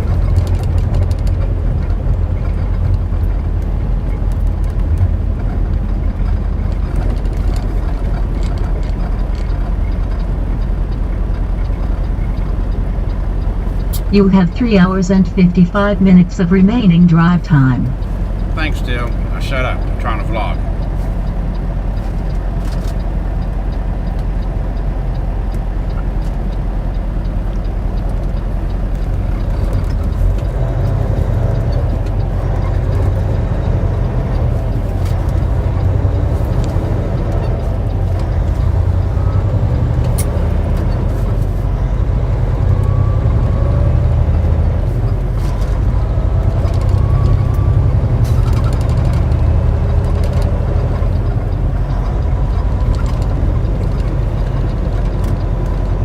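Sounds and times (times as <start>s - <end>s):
road noise: 0.0s - 56.0s
truck diesel engine rumble: 0.0s - 56.0s.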